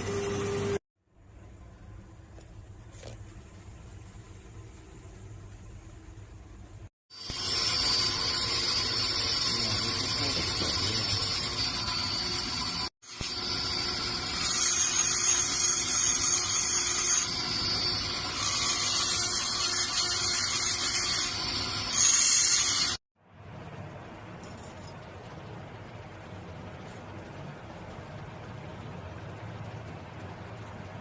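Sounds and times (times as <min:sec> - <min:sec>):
power tool grinding stone: 0:07.2 - 0:23.0.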